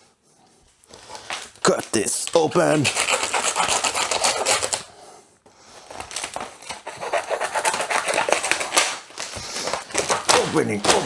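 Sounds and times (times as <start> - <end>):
packaging being cut open: 5.9 - 11.0.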